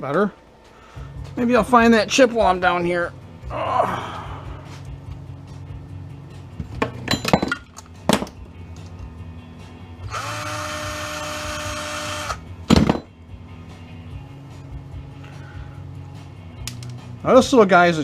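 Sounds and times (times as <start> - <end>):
small power tool running: 10.0 - 12.4.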